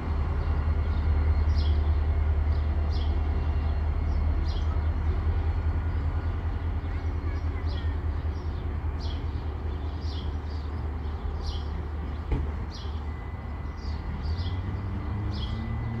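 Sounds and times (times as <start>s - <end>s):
distant diesel locomotive rumble: 0.0s - 16.0s.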